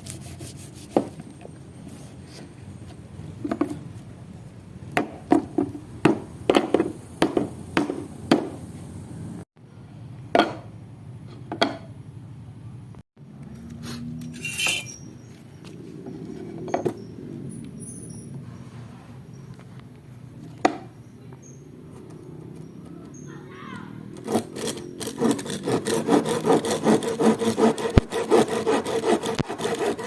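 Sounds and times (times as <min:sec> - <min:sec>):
sharp knocks and clinks: 0:14.2 - 0:15.3.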